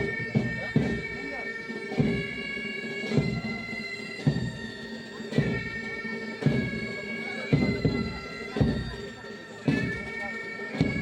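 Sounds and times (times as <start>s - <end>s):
drum beat: 0.0s - 2.4s, 7.5s - 9.1s, 9.7s - 11.0s
bagpipes playing melody: 0.0s - 11.0s.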